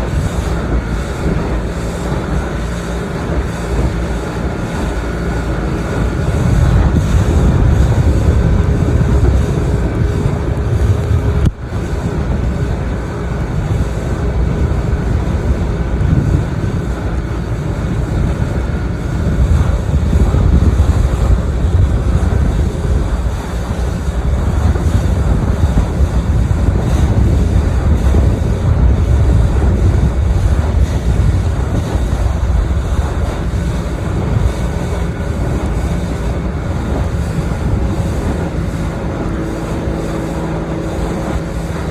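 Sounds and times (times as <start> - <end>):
boat motor running: 0.0 - 41.9
wind buffeting microphone: 0.0 - 41.9.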